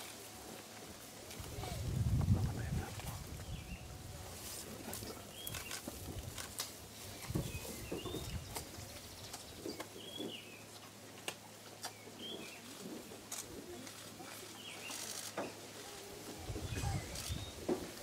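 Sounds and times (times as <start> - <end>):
low outdoor murmur: 0.0 - 18.0
birds chirping: 5.0 - 5.9, 7.0 - 10.7.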